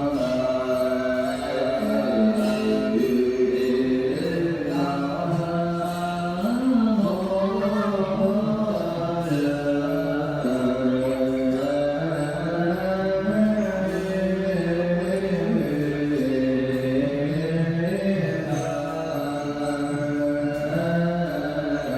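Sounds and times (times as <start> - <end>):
slow background music: 0.0 - 21.9.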